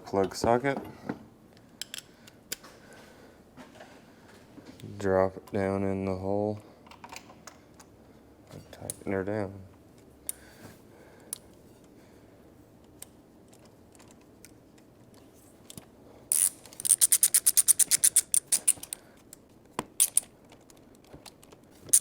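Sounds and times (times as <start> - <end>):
socket ratchet clicking: 16.3 - 19.0, 20.0 - 20.3, 21.3 - 22.0.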